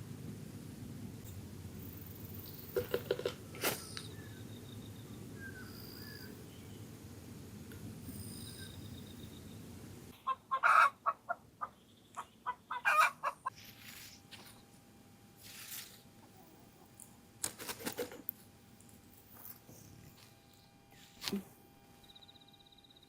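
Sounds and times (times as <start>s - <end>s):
bird calling: 2.4s - 6.8s, 10.2s - 13.5s.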